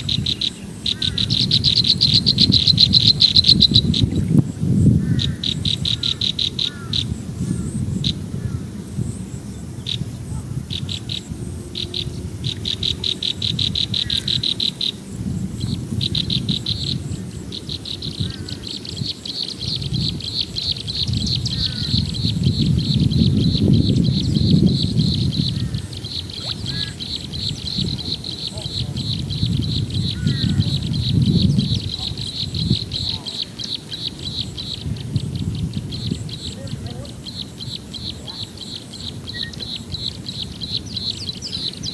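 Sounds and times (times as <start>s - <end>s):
bird chirps: 0.0s - 4.4s, 5.1s - 41.9s
insect trilling: 0.0s - 41.9s
low rumbling noise: 7.1s - 19.0s.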